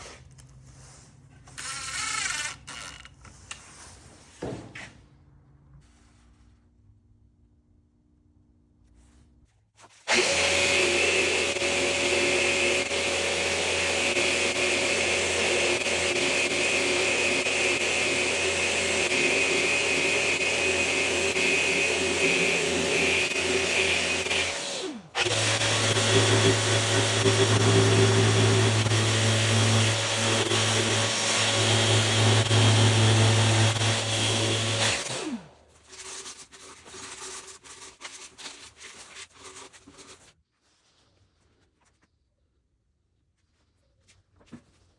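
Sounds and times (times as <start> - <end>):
electric motor running: 10.1 - 35.5.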